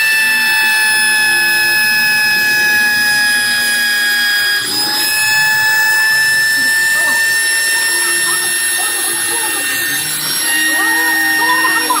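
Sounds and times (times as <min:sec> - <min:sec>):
router motors whining: 0:00.0 - 0:12.0.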